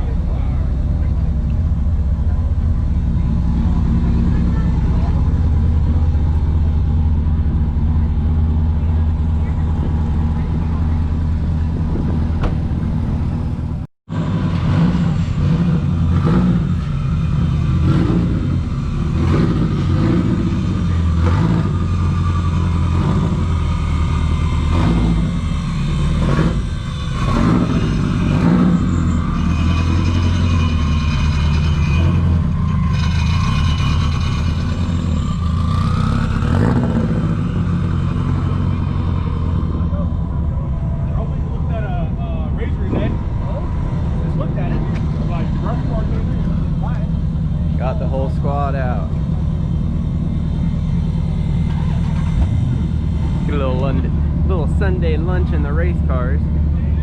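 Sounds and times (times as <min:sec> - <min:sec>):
car engine revving while driving: 0:14.1 - 0:40.4.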